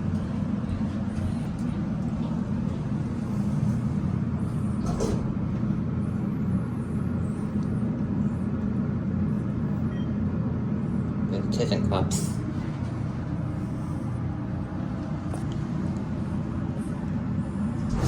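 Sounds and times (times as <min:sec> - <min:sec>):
elevator hum and rumble: 0:00.0 - 0:18.0.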